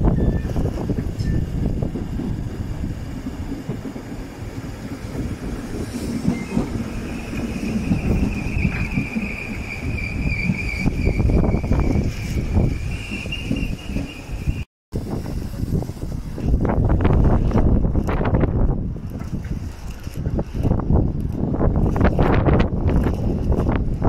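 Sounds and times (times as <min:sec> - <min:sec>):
high brake squeal: 0:00.0 - 0:01.5, 0:06.0 - 0:14.7
train wheels rumbling on rails: 0:00.0 - 0:24.0.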